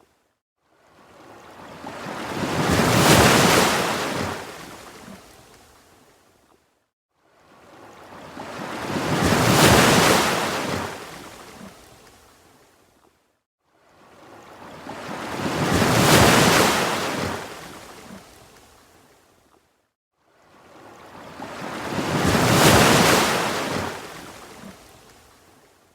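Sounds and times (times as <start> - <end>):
ocean waves surf rushing: 15.0 - 17.6, 21.2 - 24.4.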